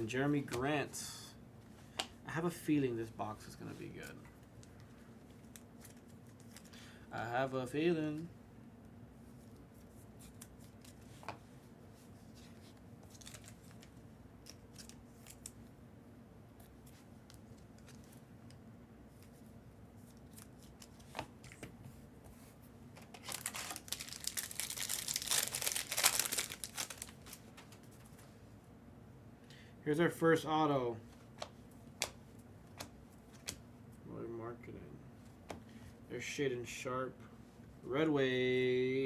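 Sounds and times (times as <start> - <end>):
cards clicking and rustling: 23.0 - 28.2
wrapper tearing and crinkling: 23.2 - 27.5.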